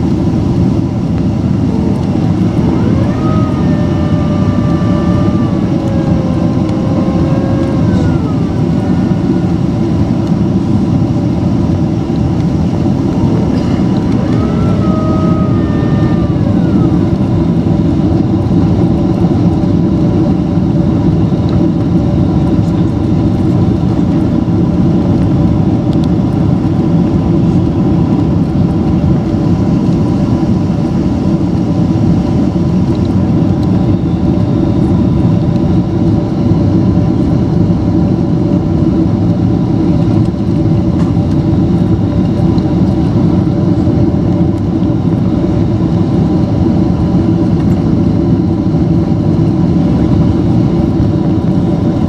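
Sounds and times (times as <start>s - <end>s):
airplane cabin engine rumble: 0.0s - 52.0s
steady hum tones: 0.0s - 52.0s
brief rising whine: 1.7s - 10.9s, 13.1s - 18.0s.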